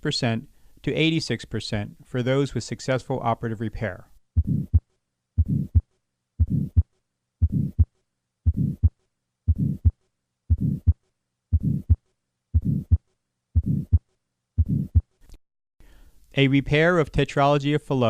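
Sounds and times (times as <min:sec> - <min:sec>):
heartbeat with murmur: 0:04.4 - 0:07.9, 0:08.5 - 0:12.0, 0:12.6 - 0:13.0, 0:13.6 - 0:14.0, 0:14.6 - 0:15.1.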